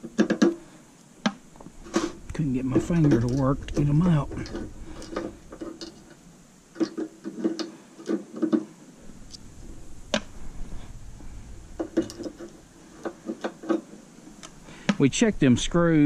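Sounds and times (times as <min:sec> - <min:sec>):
screws and metal parts clinking: 0:02.0 - 0:06.2, 0:11.8 - 0:14.0.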